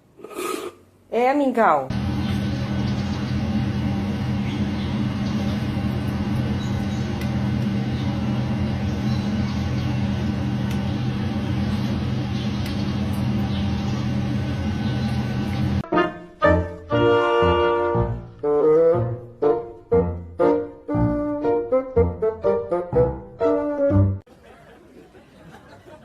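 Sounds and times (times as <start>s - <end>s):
low mechanical hum: 1.9s - 15.8s.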